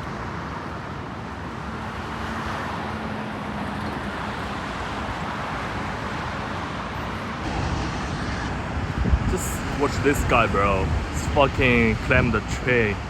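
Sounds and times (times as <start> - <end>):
cars passing on road: 0.0 - 13.0.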